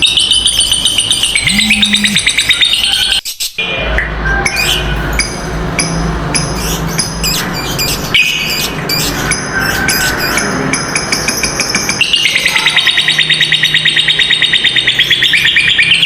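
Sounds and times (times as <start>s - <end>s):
lovebirds chattering: 1.4s - 2.2s.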